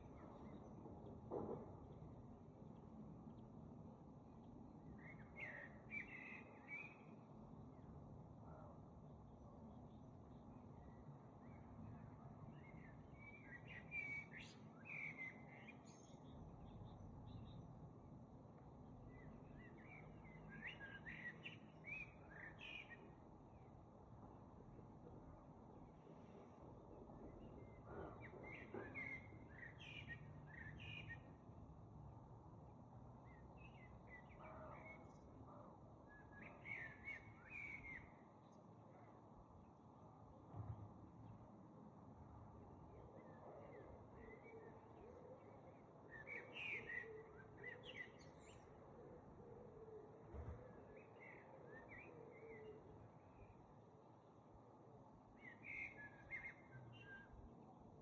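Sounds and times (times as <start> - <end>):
faint birdsong chirps: 0.0 - 58.0.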